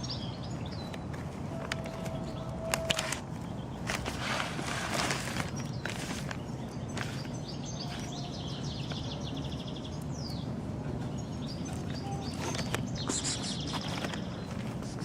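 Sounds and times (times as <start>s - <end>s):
small bird chirping: 11.1s - 15.0s.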